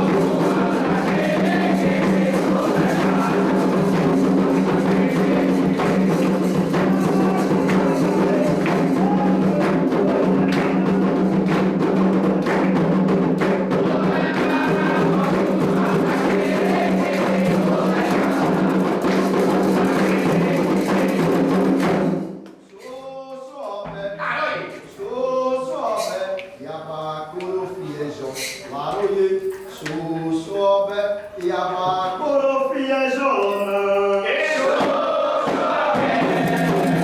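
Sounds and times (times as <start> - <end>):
hand drums and percussion: 0.0 - 22.6, 33.6 - 37.0
voices singing: 0.0 - 37.0.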